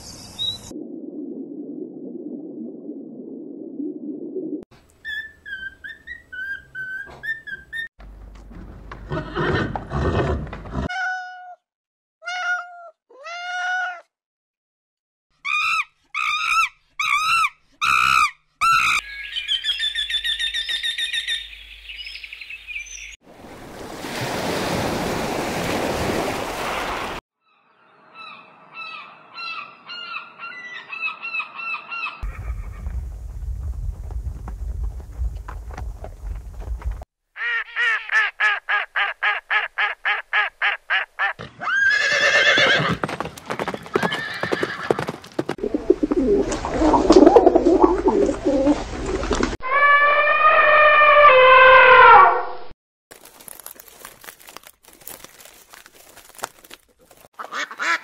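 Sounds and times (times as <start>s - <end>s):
birds chirping and calling: 15.5s - 23.2s, 27.8s - 32.8s.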